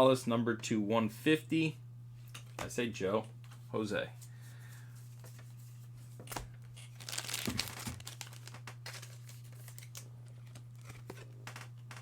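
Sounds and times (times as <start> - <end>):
card pack wrapper crinkling: 6.3 - 11.1.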